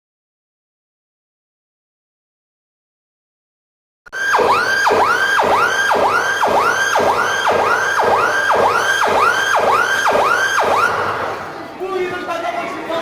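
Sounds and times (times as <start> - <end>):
electronic alarm siren wailing: 4.1 - 11.4.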